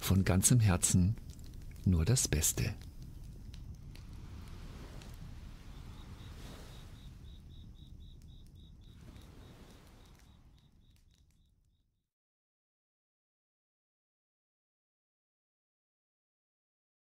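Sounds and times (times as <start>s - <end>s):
campfire crackling: 0.0s - 11.9s
cricket chirping: 0.0s - 12.0s.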